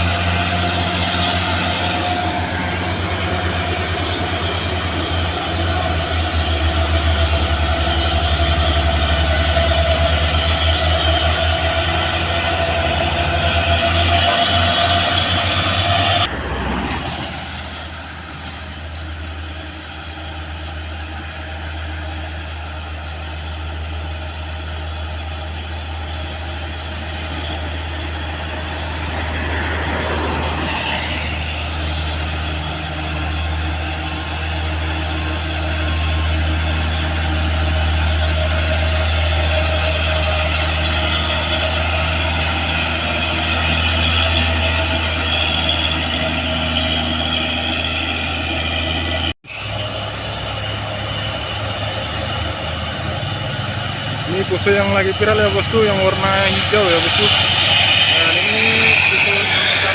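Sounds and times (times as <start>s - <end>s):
diesel truck engines droning: 0.0s - 59.9s
vehicle passing: 11.6s - 18.0s.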